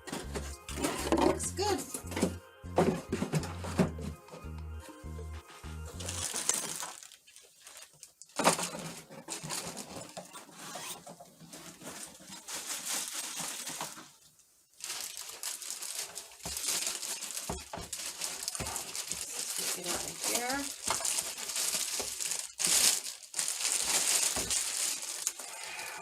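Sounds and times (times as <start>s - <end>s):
packing material crinkling: 5.9s - 26.0s.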